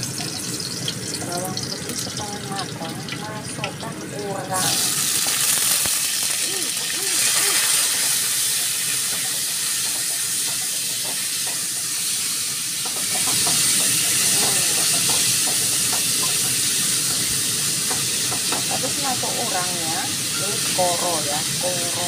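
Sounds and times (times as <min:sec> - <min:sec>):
shrimp sizzling in hot oil: 0:00.0 - 0:22.0.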